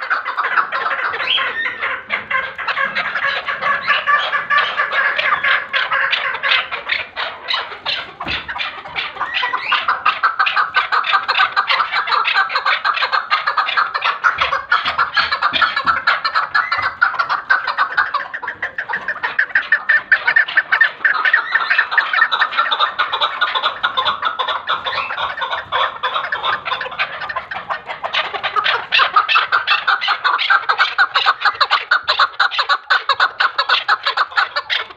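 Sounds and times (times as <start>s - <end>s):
partridge clucking calls: 0.0s - 34.9s.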